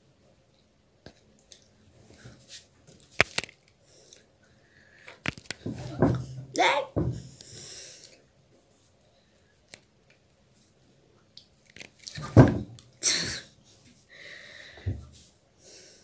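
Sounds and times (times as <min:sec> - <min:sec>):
sharp breath: 0:14.1 - 0:14.9.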